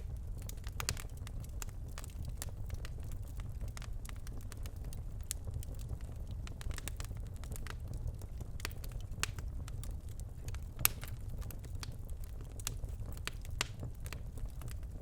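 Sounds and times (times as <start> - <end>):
fire crackles and pops: 0.0 - 15.0
fire rumbling in fireplace: 0.0 - 15.0.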